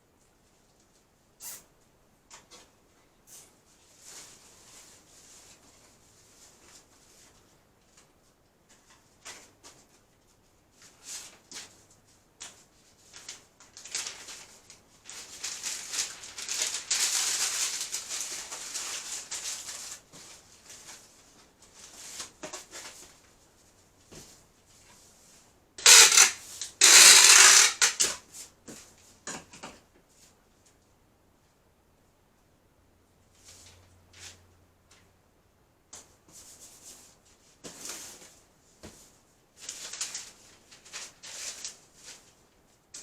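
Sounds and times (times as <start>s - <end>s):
dry rustling and scraping: 12.5s - 28.9s.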